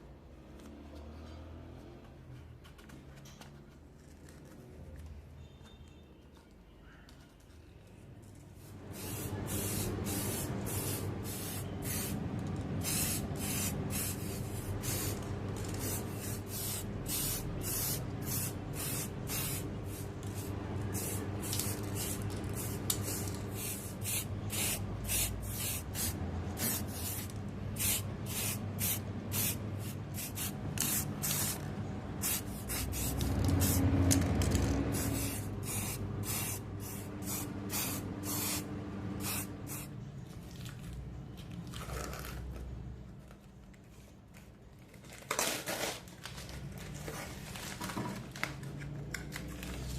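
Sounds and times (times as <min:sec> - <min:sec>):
spray nozzle hissing bursts: 0:08.9 - 0:12.2, 0:12.8 - 0:15.2, 0:15.8 - 0:31.6, 0:32.2 - 0:33.8, 0:34.9 - 0:39.9.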